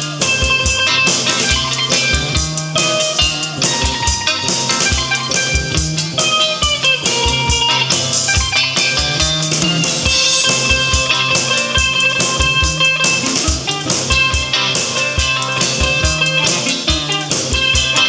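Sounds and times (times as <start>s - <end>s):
steady drum beat: 0.0s - 18.0s.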